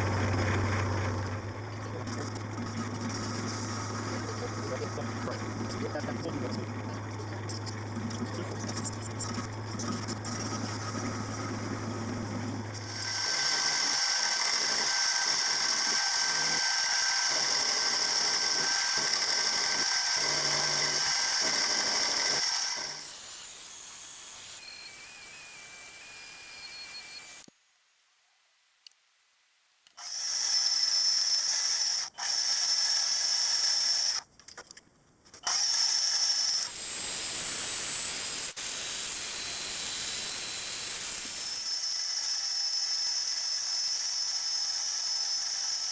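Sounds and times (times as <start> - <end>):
machine tool whining: 0.1 - 27.5, 36.4 - 42.2.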